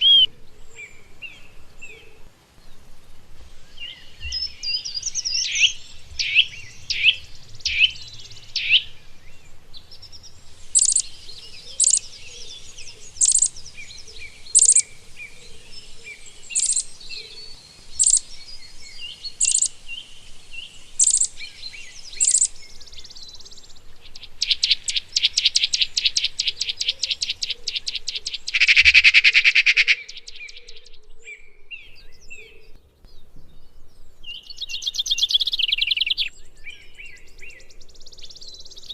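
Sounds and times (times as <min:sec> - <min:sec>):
songbirds singing: 0:00.0 - 0:38.9
steady high hiss: 0:00.0 - 0:38.9
loud buzzy bird trill: 0:04.3 - 0:09.1, 0:09.9 - 0:15.4, 0:16.1 - 0:20.0, 0:21.0 - 0:22.9.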